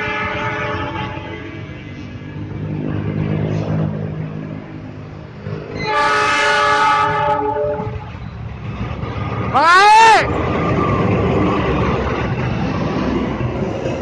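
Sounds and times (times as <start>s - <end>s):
locomotive horn chord: 0.0s - 1.8s, 5.8s - 8.0s
train engine and rail rumble: 0.0s - 14.0s.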